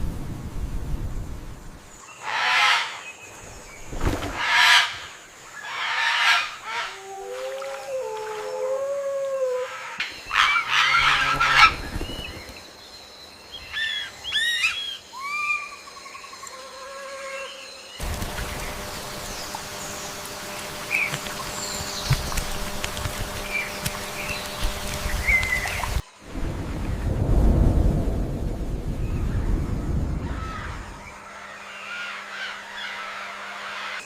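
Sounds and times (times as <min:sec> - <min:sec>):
birds squawking harshly: 0:09.8 - 0:12.1.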